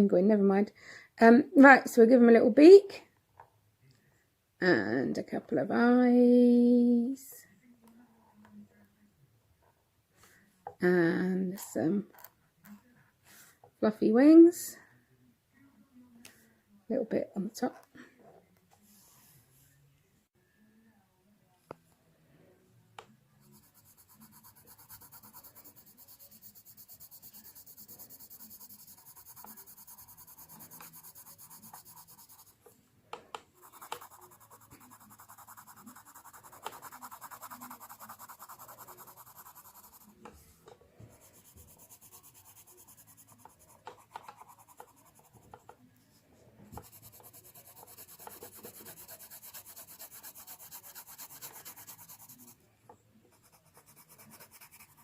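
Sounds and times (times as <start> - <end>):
pencil scribbling on paper: 23.4 - 32.6, 33.6 - 40.3, 41.1 - 45.8, 46.8 - 52.6, 53.3 - 55.0.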